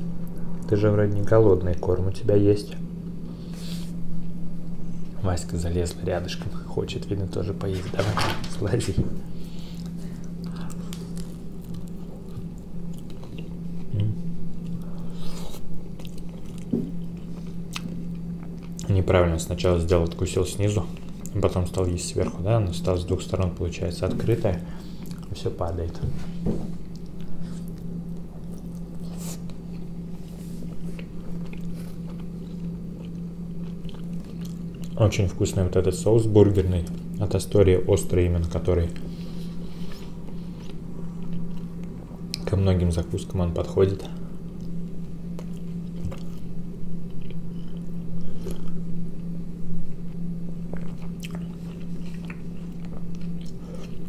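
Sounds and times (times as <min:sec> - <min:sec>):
steady low hum: 0:00.0 - 0:54.0
close-up chewing: 0:09.7 - 0:18.9, 0:24.9 - 0:25.4, 0:26.8 - 0:35.0, 0:39.0 - 0:42.5, 0:44.5 - 0:49.3, 0:49.9 - 0:54.0.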